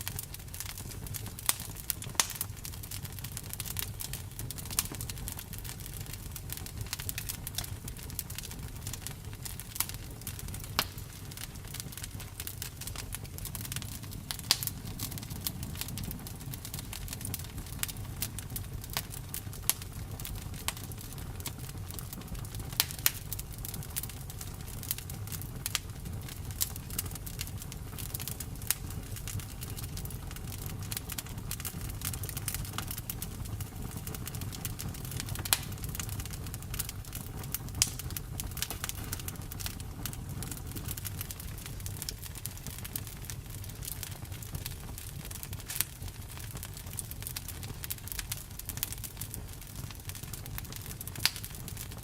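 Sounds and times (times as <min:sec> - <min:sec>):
campfire crackling and popping: 0:00.0 - 0:52.0
low fire rumble: 0:00.0 - 0:52.0.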